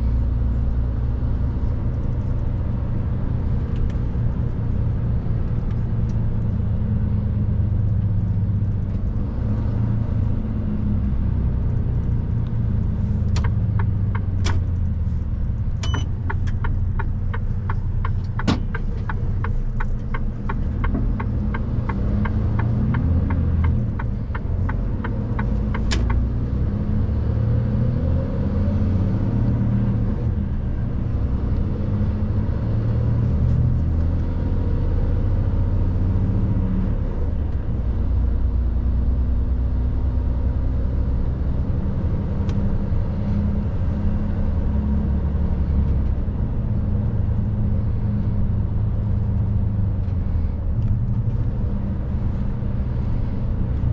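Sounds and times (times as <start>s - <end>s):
diesel engine rumbling: 0.0s - 53.9s
turn indicator ticking: 12.4s - 26.6s.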